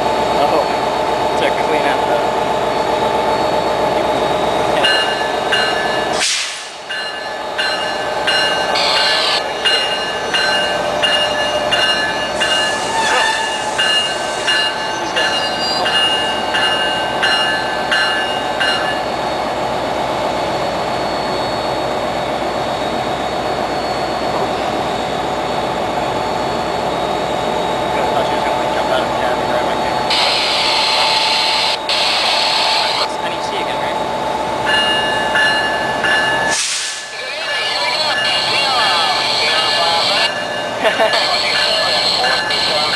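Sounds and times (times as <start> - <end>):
diesel train engine hum: 0.0 - 42.9
warning bell ringing: 2.8 - 6.2, 6.8 - 19.5, 34.6 - 42.9.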